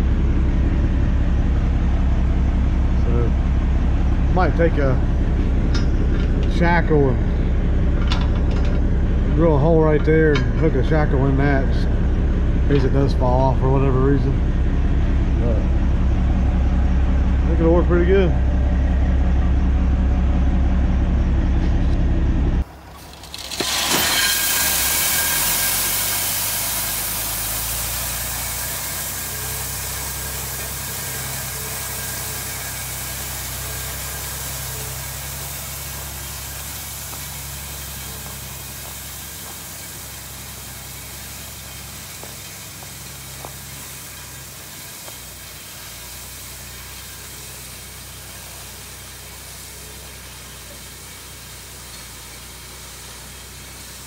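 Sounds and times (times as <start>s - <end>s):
truck engine idling: 0.0s - 54.0s
truck engine running with hiss: 0.0s - 54.0s
gravel pouring from truck: 22.6s - 54.0s.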